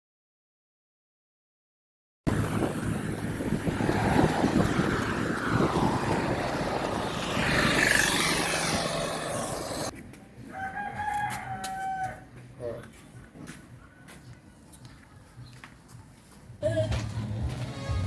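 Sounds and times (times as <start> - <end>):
loud steady rushing noise: 2.3 - 9.9
rooster crowing: 10.5 - 12.3.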